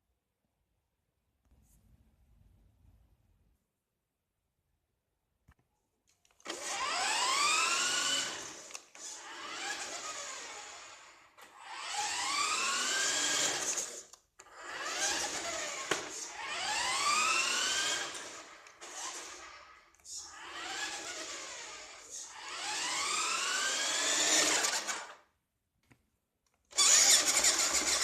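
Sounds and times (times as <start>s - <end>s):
toy truck electric motor whining: 6.4s - 25.3s, 26.7s - 28.0s.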